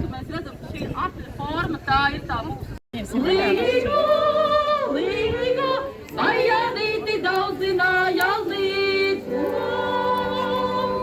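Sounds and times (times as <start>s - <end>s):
women singing together: 3.0s - 11.0s.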